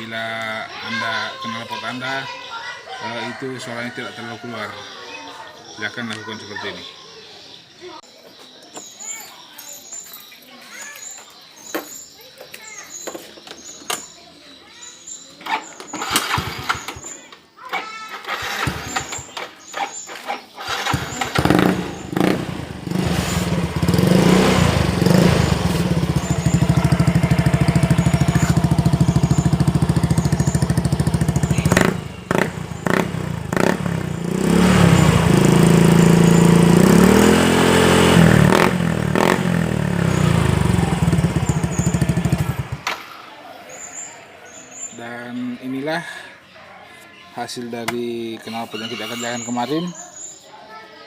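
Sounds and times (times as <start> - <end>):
motorcycle engine running: 18.3 - 43.3.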